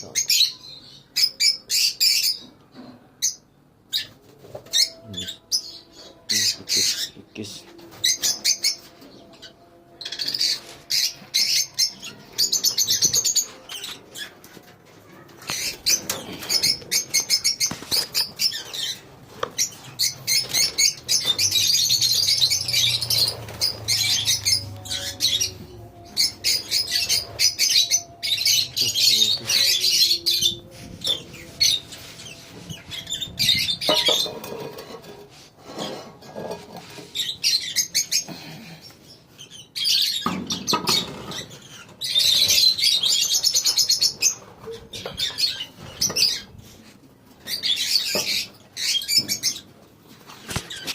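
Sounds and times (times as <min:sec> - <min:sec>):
lovebirds chattering shrilly: 0:15.4 - 0:35.2.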